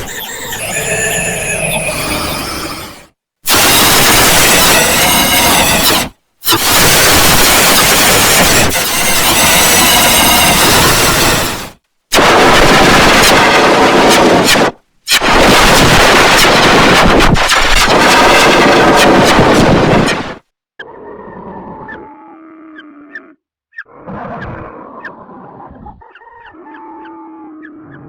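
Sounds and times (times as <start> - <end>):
harsh distorted farm animal calls: 0.0 - 3.1, 3.8 - 11.8, 20.8 - 28.0
lower animal call: 20.8 - 28.0.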